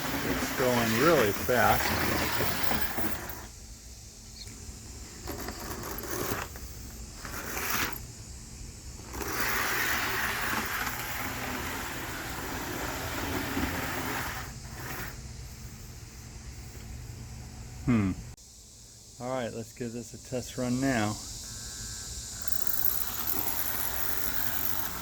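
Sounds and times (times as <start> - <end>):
model train wheels rattling on track: 0.0 - 3.5, 9.0 - 15.1, 22.4 - 25.0
small motor whirring: 22.4 - 25.0.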